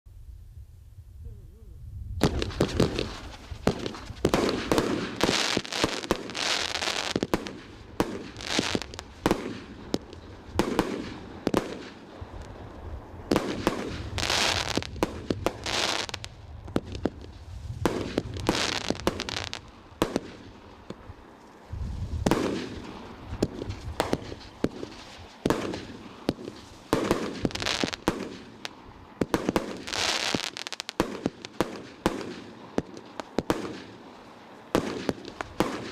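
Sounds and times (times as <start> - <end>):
deep firework boom: 2.1 - 5.3
fireworks bangs and crackling: 2.2 - 35.9.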